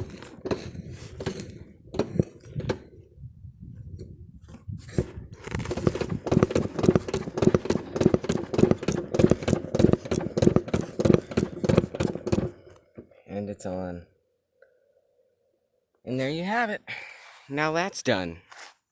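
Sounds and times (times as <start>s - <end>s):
wheel knocked onto axle: 5.7s - 12.6s.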